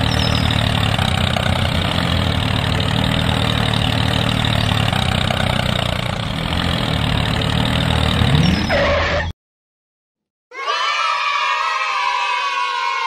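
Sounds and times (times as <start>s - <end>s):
tractor engine running: 0.0s - 8.8s.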